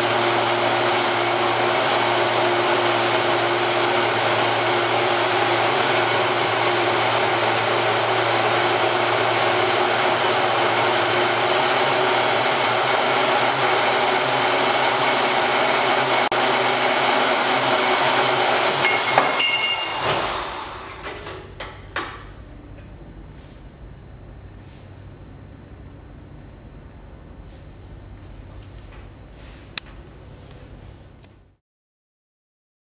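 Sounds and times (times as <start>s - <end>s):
power tool motor running: 0.0s - 21.1s.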